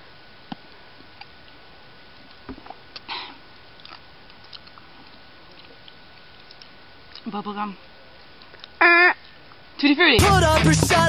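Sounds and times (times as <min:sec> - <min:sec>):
person chewing: 0:03.7 - 0:07.3.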